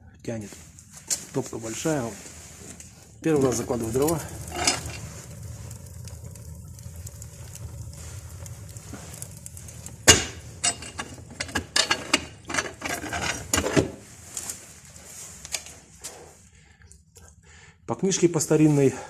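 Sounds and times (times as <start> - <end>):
firewood knocking on wood and brick: 9.0 - 14.0.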